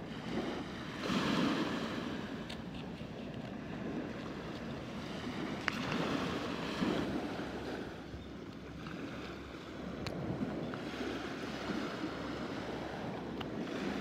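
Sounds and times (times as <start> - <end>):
surf washing onto sandy beach: 0.0 - 2.9, 3.5 - 7.9.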